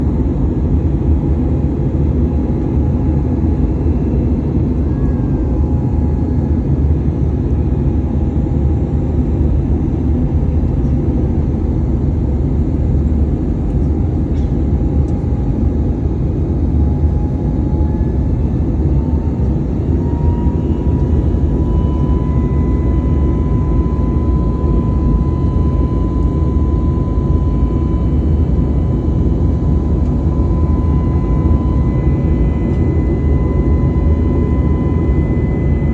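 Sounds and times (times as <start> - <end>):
jet engines and airflow rumble: 0.0 - 35.9
faint rising whine: 19.4 - 35.9.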